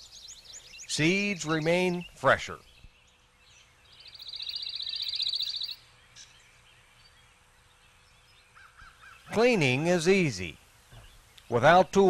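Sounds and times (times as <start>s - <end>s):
songbird high-pitched trill: 0.0s - 9.8s.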